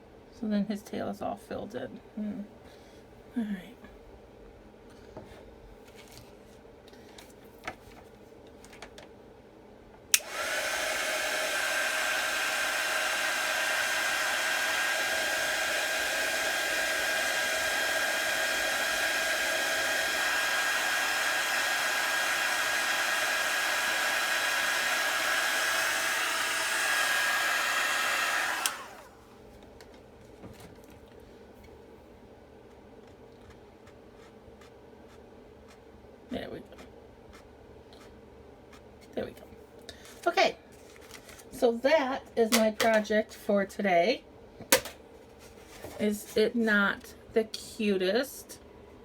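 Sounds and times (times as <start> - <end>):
hair dryer switch click: 10.1 - 11.6, 25.1 - 29.0
hair dryer blowing with high whine: 10.1 - 29.3.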